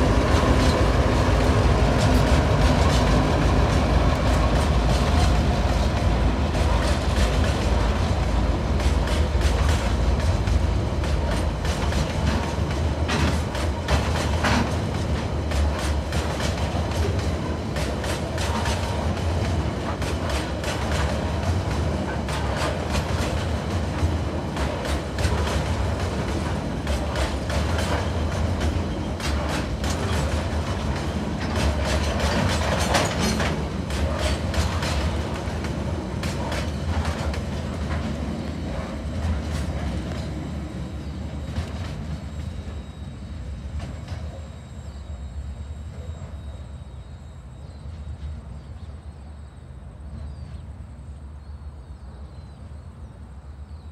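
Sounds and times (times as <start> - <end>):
wheels clacking over rail joints: 0.0 - 42.8
freight train rumble: 0.0 - 53.9.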